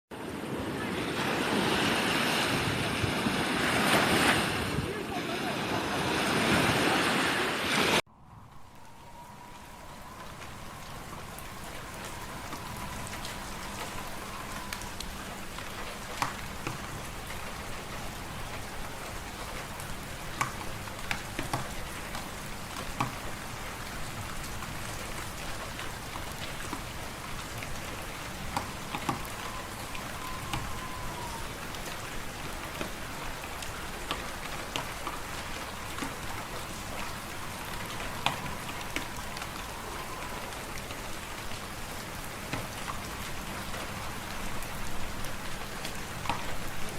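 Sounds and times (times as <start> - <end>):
faint whistling wind: 0.1 - 46.9.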